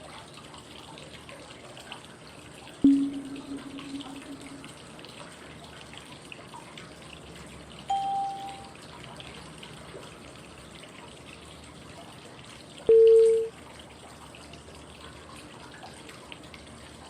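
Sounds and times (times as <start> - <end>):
flowing water: 0.0 - 17.0
short clear tone: 2.8 - 4.8, 7.9 - 8.7, 12.9 - 13.5.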